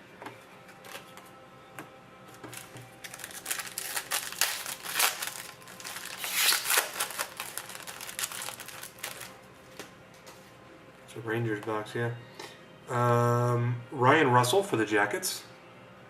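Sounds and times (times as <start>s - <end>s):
card wrappers rustling and crinkling: 2.3s - 9.9s.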